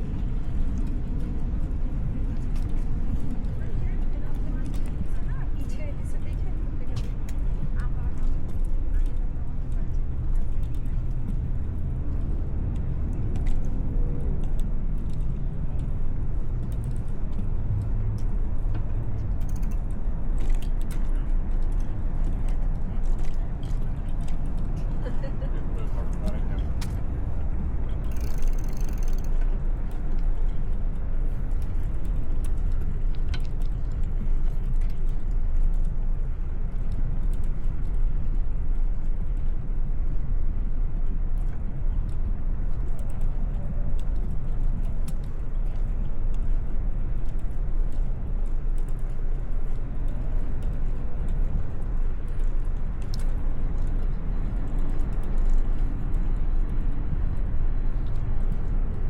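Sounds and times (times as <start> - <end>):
wind and road rumble: 0.0 - 59.0
faint clicks: 16.6 - 25.0, 27.9 - 36.0, 52.2 - 56.9.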